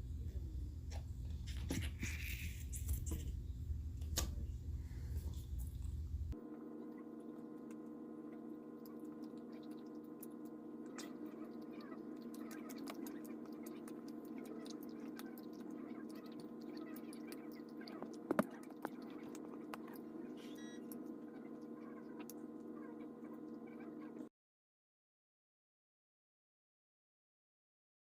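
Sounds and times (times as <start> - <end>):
low hum: 0.0 - 24.3
chewing candy: 8.8 - 23.6
wet mouth clicks: 9.0 - 20.0.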